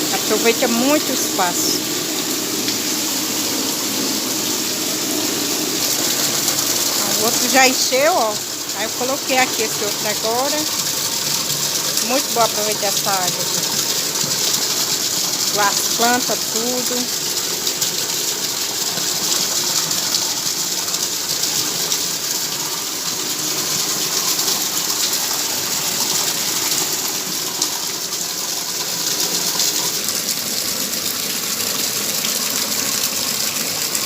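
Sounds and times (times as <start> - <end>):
rainwater pouring into a bucket: 0.0 - 34.0.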